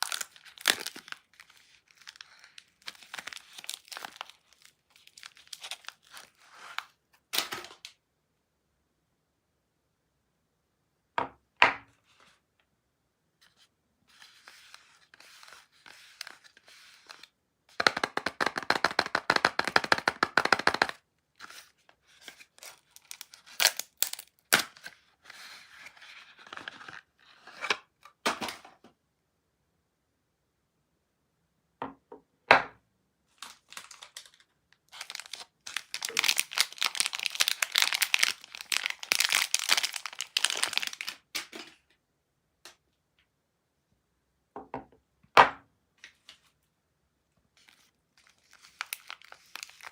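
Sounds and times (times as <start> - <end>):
wrapper tearing and crinkling: 0.0 - 7.8, 22.3 - 24.9, 33.3 - 41.6, 47.6 - 49.9.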